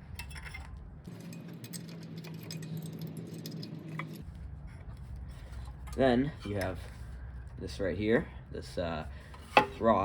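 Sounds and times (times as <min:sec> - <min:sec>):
metal engine parts clinking: 0:00.0 - 0:07.0
low steady hum: 0:00.0 - 0:10.0.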